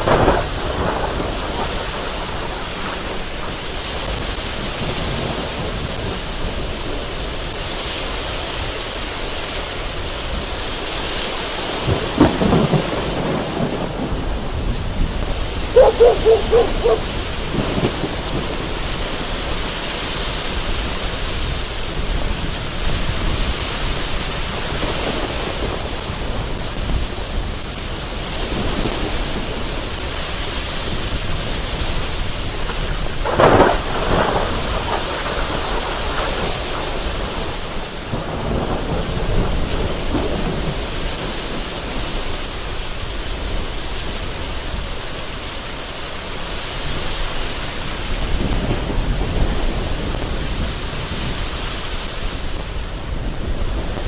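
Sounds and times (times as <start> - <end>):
thunder clap: 0.0 - 7.0, 11.6 - 19.6, 28.3 - 42.3
thunder rumbling: 0.0 - 7.4, 11.4 - 43.7
gusting wind: 0.0 - 54.0
heavy rain: 0.0 - 54.0.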